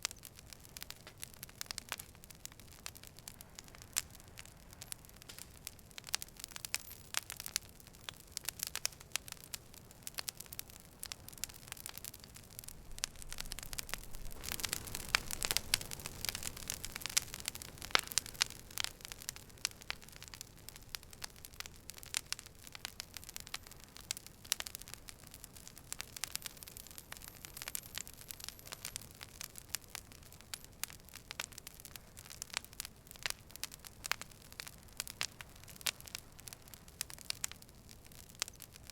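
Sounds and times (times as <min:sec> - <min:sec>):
campfire wood crackling and popping: 0:00.0 - 0:38.9
fire hissing: 0:10.0 - 0:30.6.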